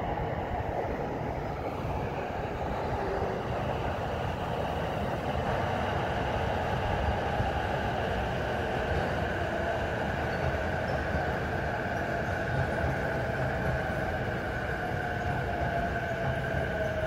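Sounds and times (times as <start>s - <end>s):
electric train wheels and motors: 0.0s - 17.0s.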